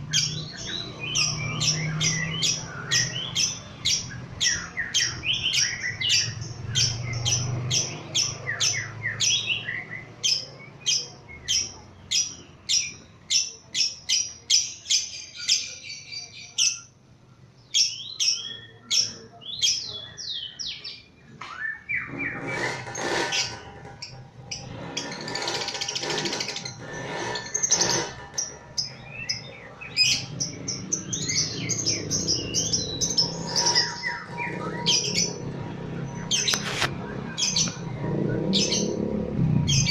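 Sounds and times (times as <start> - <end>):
dense chattering sound: 22.0 - 39.0
lovebird chirping shrilly: 30.0 - 35.5.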